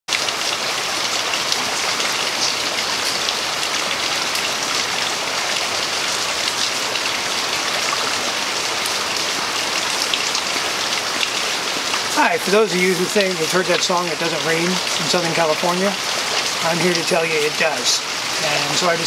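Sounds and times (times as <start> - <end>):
rain on wet pavement: 0.1 - 19.0
raindrop ticks: 9.8 - 19.0.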